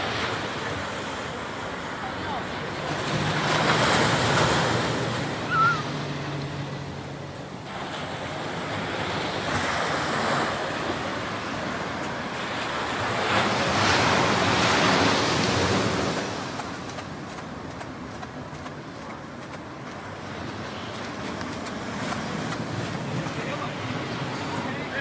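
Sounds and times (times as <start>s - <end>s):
ocean waves washing onto shore: 0.0s - 25.0s
high wavering chirp: 5.4s - 5.9s.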